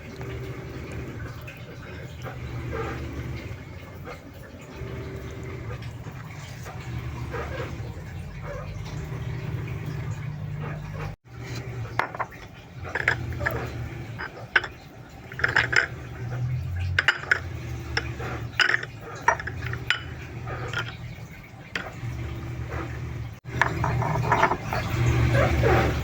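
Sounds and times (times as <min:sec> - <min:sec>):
utensils clinking against dishes: 0:10.0 - 0:22.1, 0:23.4 - 0:26.0.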